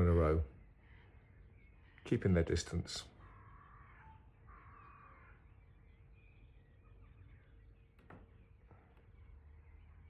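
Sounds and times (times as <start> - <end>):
faint distant bird calls: 0.0 - 10.0.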